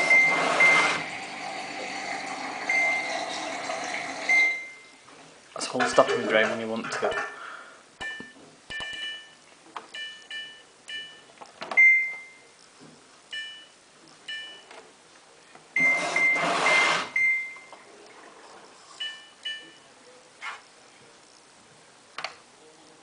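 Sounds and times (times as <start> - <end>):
control panel beeps: 0.0 - 1.0, 8.0 - 12.5, 13.3 - 14.7, 15.8 - 17.8, 19.0 - 19.9.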